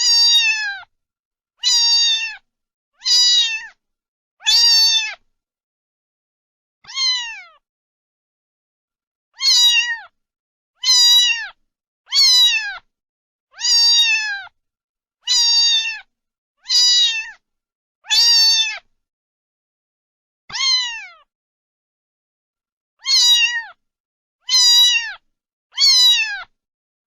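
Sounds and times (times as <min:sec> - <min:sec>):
cat meowing: 0:00.0 - 0:00.9, 0:01.6 - 0:03.8, 0:04.4 - 0:05.2, 0:06.8 - 0:07.6, 0:09.4 - 0:10.2, 0:10.8 - 0:12.9, 0:13.5 - 0:14.6, 0:15.2 - 0:17.4, 0:18.0 - 0:18.9, 0:20.5 - 0:21.3, 0:23.0 - 0:23.8, 0:24.4 - 0:26.5.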